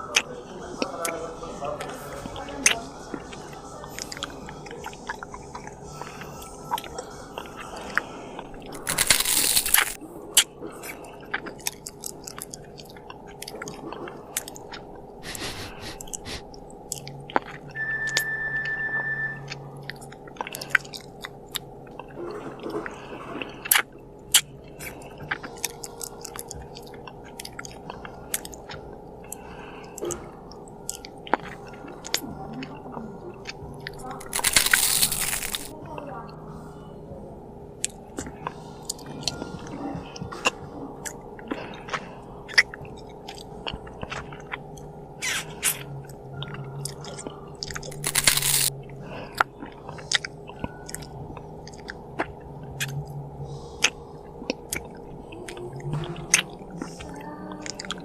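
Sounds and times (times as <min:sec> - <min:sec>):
chewing and crunching: 0:00.0 - 0:18.2, 0:19.5 - 0:58.0
wet mouth clicks: 0:08.8 - 0:17.6, 0:53.8 - 0:58.0
short steady tone: 0:17.8 - 0:19.6.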